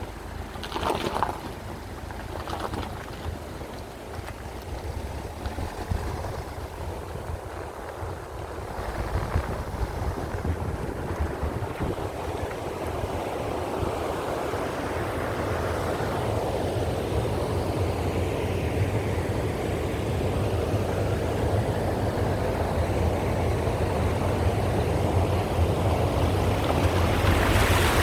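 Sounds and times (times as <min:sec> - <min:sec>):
tyre rush on road: 0:00.0 - 0:14.0, 0:24.7 - 0:28.0
car engine rumble: 0:00.0 - 0:17.6, 0:18.7 - 0:28.0.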